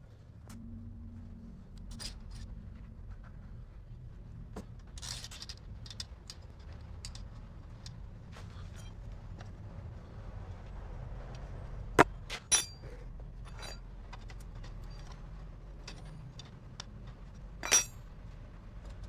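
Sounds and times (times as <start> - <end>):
metallic clinks of tools: 12.5 - 13.8, 17.6 - 18.0.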